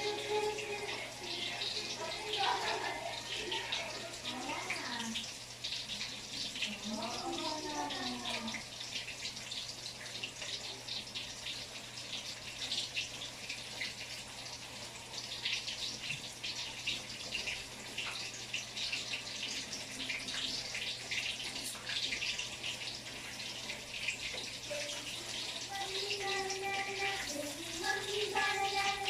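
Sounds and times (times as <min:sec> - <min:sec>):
tap water splashing in sink: 0:15.4 - 0:29.0.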